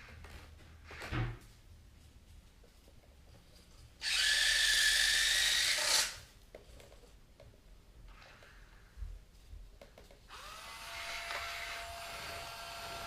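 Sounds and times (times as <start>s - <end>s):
electric motors whining: 4.0s - 6.2s, 10.3s - 13.0s.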